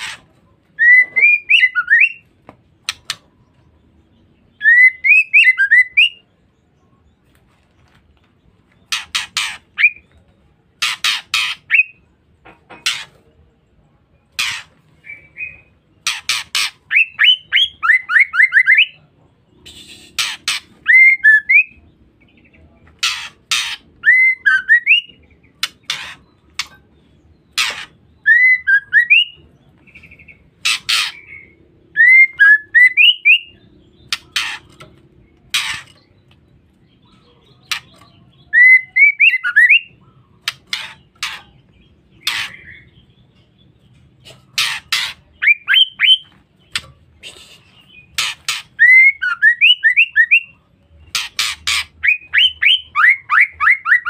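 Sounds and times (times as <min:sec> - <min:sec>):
bird rasping chatter: 0:00.0 - 0:00.4, 0:08.8 - 0:10.1, 0:10.7 - 0:12.0, 0:12.7 - 0:13.2, 0:14.4 - 0:17.8, 0:19.6 - 0:21.0, 0:22.9 - 0:24.2, 0:25.1 - 0:28.2, 0:29.9 - 0:31.6, 0:33.0 - 0:36.3, 0:37.0 - 0:50.4, 0:51.0 - 0:54.0.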